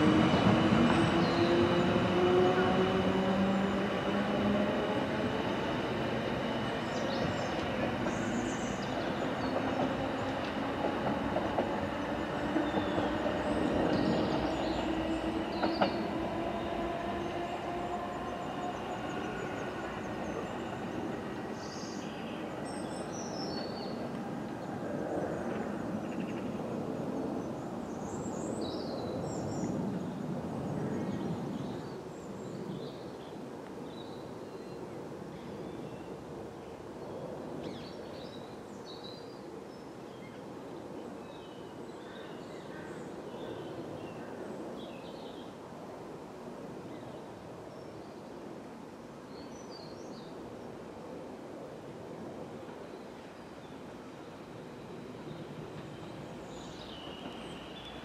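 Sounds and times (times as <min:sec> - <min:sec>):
electric train rumbling on track: 0:00.0 - 0:58.0
birds chirping: 0:00.3 - 0:24.0.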